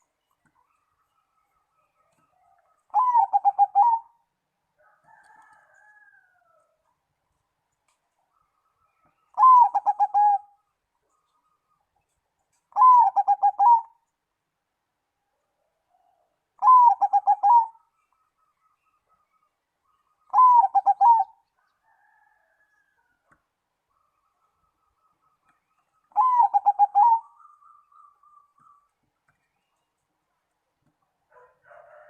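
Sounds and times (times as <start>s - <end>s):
dove cooing: 2.4s - 4.2s, 9.3s - 10.6s, 12.7s - 14.0s, 16.6s - 17.8s, 20.3s - 21.4s, 26.1s - 28.8s.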